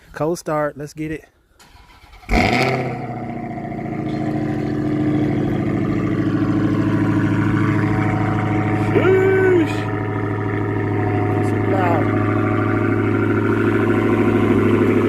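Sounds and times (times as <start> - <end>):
car engine fast idle: 1.6 - 15.0
person calling out: 8.8 - 9.9.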